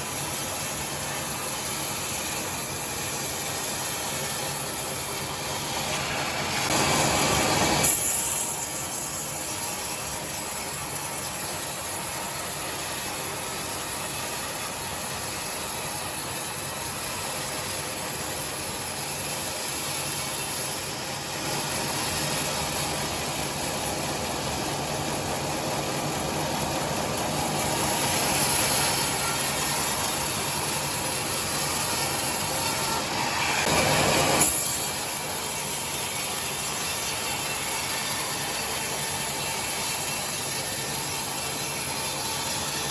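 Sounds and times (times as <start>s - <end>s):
sawmill saw ripping timber: 1.5s - 10.0s, 19.5s - 42.9s.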